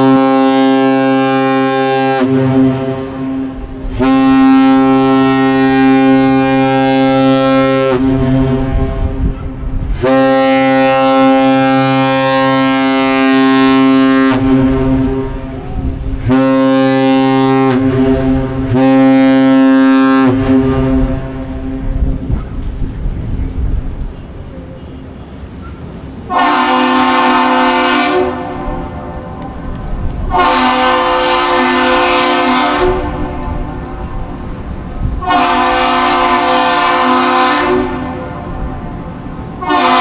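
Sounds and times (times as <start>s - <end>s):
deep ship horn blasts: 0.0s - 25.4s, 26.2s - 40.0s.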